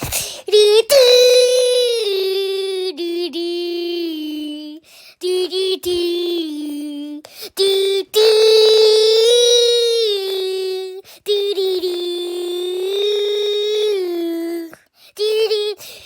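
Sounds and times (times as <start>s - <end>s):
high voice singing wordless melody: 0.0s - 16.0s.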